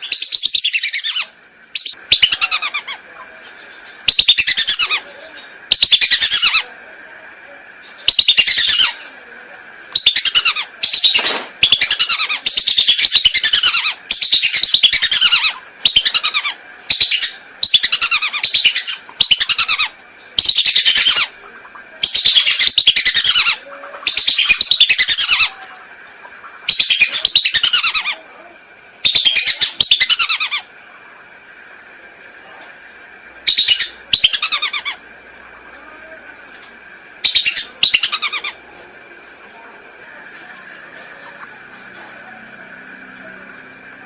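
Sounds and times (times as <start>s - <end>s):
whistling ducks calling: 9.9s - 28.2s, 29.0s - 30.7s, 33.4s - 35.0s, 37.2s - 38.7s.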